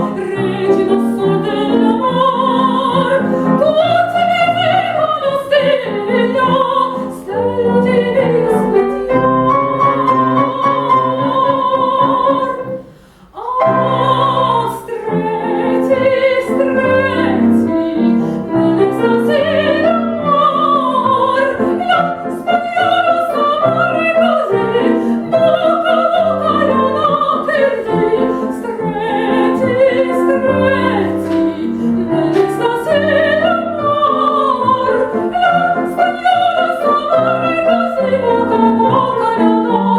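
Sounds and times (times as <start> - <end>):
operatic singing: 0.0 - 39.9
piano accompaniment: 0.0 - 39.9.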